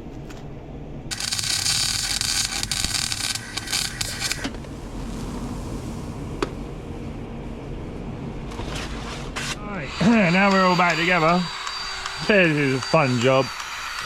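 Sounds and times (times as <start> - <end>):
low engine-like running: 1.1 - 11.5
welder arc crackling: 1.1 - 14.0.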